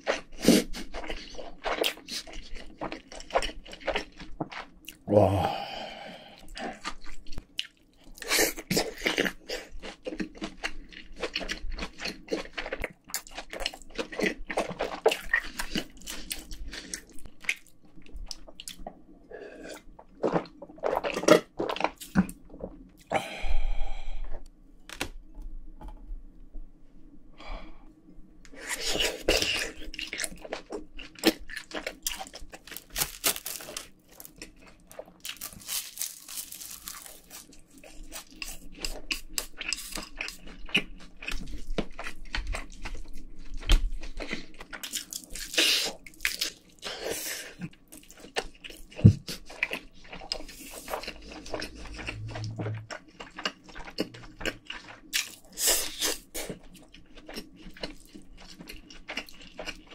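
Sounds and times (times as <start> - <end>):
chewing and mouth smacking: 28.7 - 46.9, 47.6 - 59.9.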